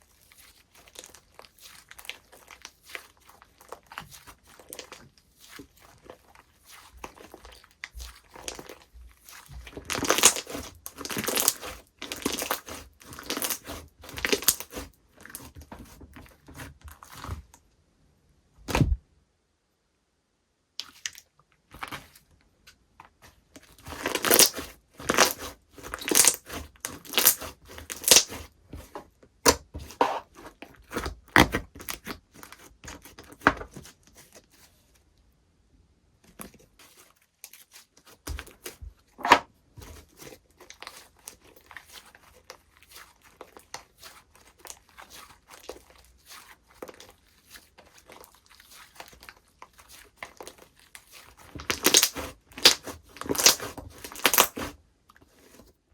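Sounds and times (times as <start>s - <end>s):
slime crackling and popping: 0.4s - 15.5s, 23.7s - 28.5s, 40.1s - 54.8s.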